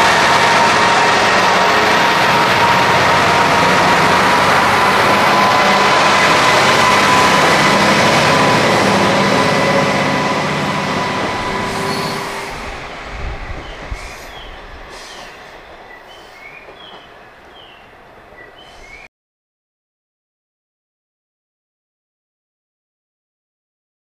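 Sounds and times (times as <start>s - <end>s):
high wheel squeal: 0.0s - 12.8s
diesel railcar running on rails: 0.0s - 19.1s.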